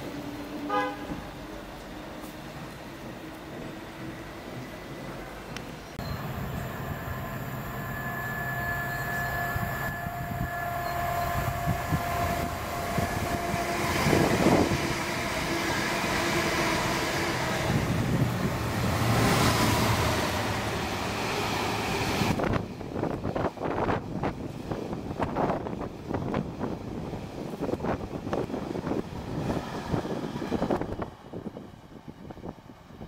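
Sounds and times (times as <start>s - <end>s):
freight train rumbling past: 0.0s - 33.0s
electric train motor whine: 6.0s - 18.3s.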